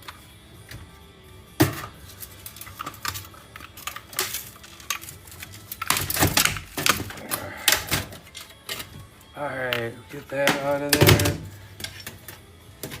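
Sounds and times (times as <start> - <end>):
metal parts and tools clicking: 2.0 - 9.0, 9.7 - 13.0.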